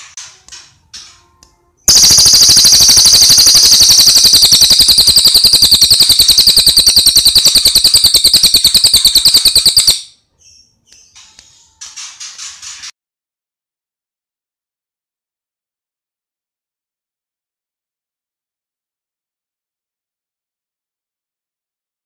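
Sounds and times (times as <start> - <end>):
songbird chirping and trilling: 1.9 - 12.8.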